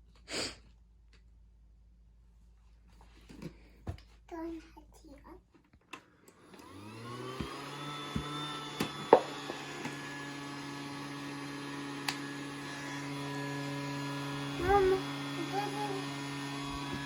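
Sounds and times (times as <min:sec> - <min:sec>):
toy vacuum cleaner motor humming: 0:06.4 - 0:17.0.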